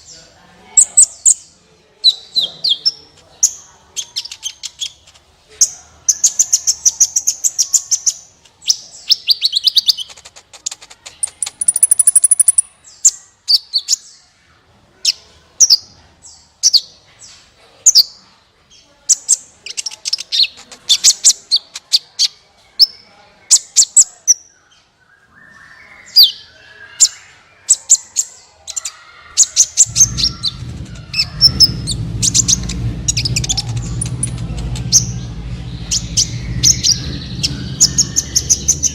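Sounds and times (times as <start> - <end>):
bird chirping and trilling: 0.8 - 14.2, 19.1 - 38.9
steady low hum: 29.8 - 38.9.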